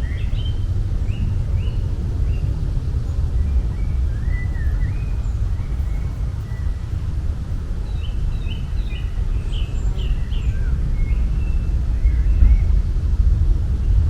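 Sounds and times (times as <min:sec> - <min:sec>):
birds chirping: 0:00.0 - 0:07.1, 0:07.8 - 0:12.9
steady low rumble: 0:00.0 - 0:14.0.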